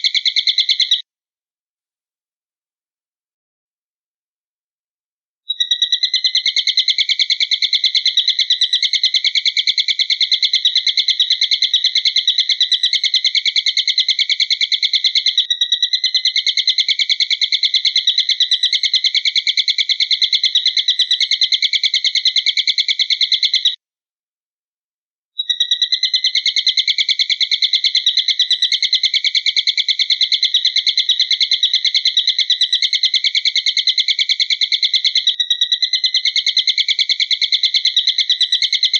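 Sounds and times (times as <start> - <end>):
high rapidly pulsing bird trill: 0.0 - 1.0, 5.5 - 23.8, 25.4 - 38.9.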